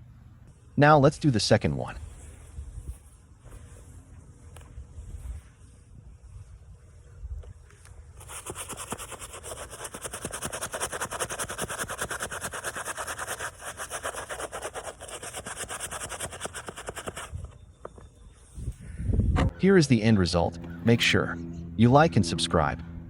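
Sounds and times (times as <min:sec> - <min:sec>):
brush scrubbing a sneaker: 0:08.1 - 0:17.4.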